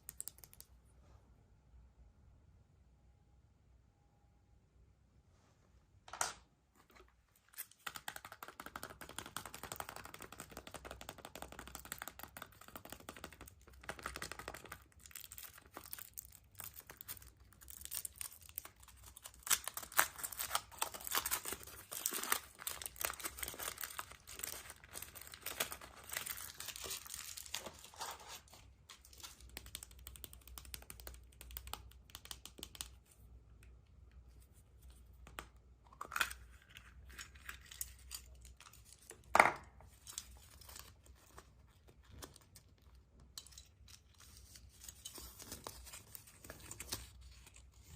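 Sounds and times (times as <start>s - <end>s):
foil wrappers crinkling: 14.9s - 28.5s.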